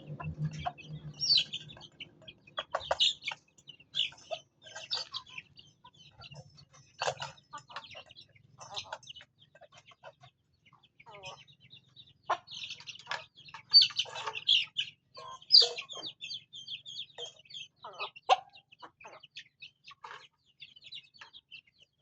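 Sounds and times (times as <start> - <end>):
chickens clucking: 0.0 - 22.0
chicks chirping: 0.0 - 22.0.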